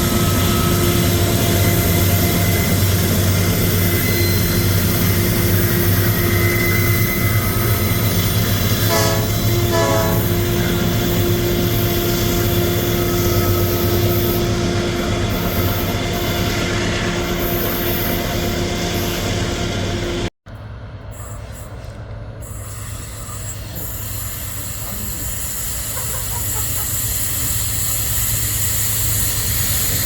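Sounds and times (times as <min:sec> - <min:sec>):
diesel locomotive rumbling: 0:00.0 - 0:30.0
locomotive horn blasts: 0:08.7 - 0:11.0.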